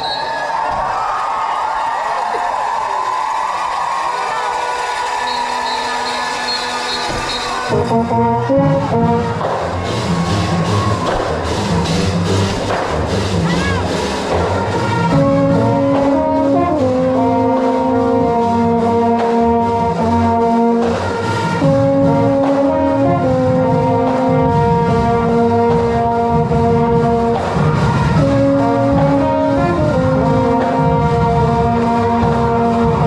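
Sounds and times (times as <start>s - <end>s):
drums: 0.0s - 33.0s
brass chords: 4.3s - 33.0s.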